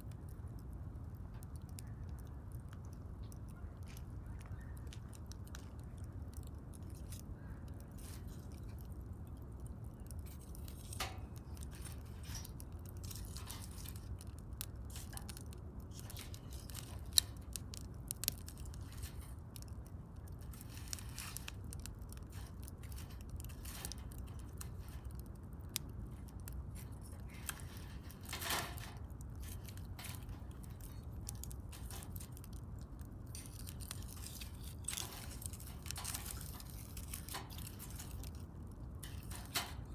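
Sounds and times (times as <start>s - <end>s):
fire pops and snaps: 0.0s - 39.9s
wood fire crackling: 0.0s - 39.9s.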